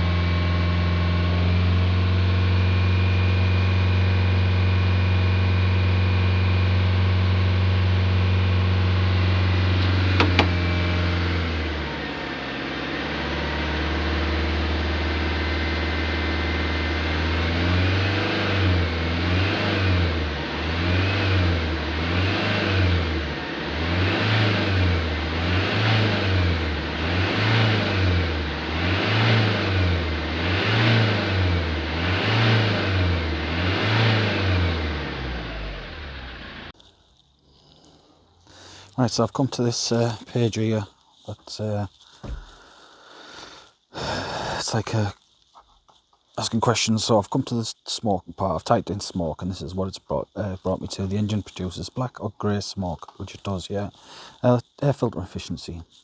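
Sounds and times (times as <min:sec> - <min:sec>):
diesel engine idling and revving: 0:00.0 - 0:36.8.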